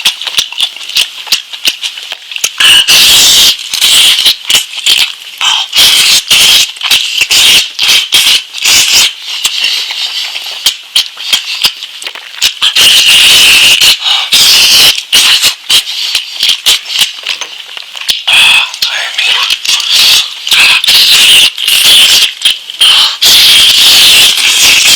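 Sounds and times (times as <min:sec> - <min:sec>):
crunchy wet chewing: 0:00.0 - 0:02.6, 0:04.0 - 0:21.0.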